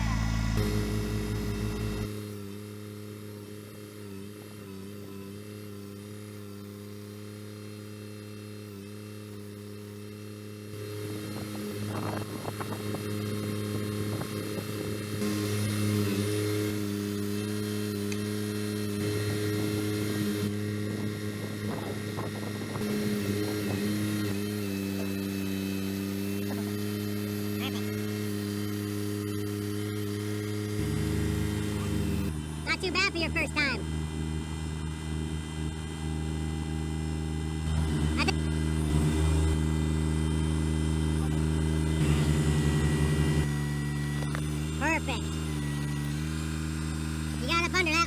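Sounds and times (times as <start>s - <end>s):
high-pitched squeal: 0.0s - 2.1s
tractor diesel engine running: 0.0s - 5.1s, 29.9s - 48.0s.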